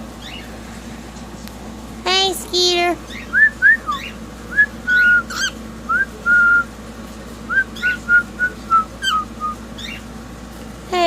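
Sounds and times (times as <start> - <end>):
cockatiel whistling: 3.1 - 6.7, 7.5 - 10.0.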